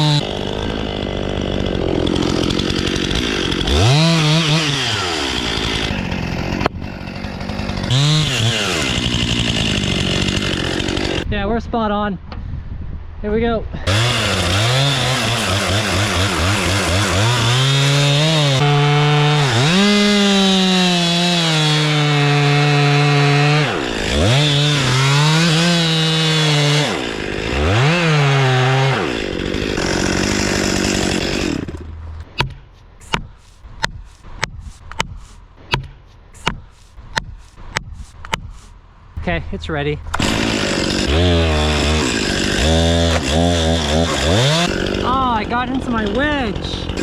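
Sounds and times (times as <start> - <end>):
chainsaw cutting wood: 0.0 - 11.3, 13.8 - 38.8, 40.0 - 47.0
sharp knocks: 31.7 - 38.5.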